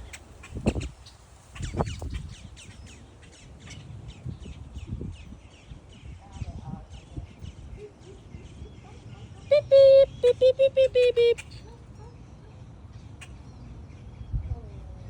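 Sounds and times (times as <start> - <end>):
birds calling: 0.0 - 14.6.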